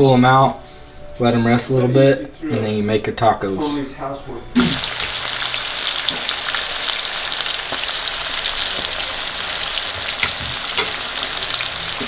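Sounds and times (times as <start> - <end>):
meat sizzling in grease: 4.6 - 12.0.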